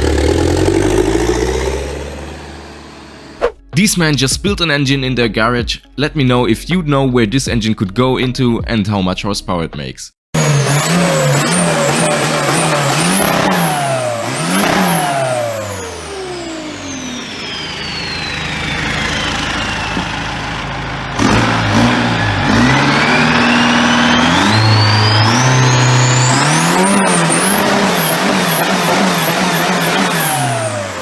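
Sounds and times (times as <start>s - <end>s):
engine revving: 0.0s - 3.8s, 10.4s - 31.0s
high turbo whistle: 10.4s - 31.0s.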